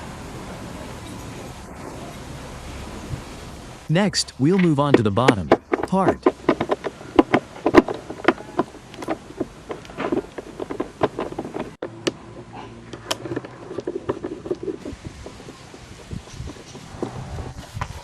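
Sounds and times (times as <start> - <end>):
knocks of metal on plastic: 4.8 - 12.2.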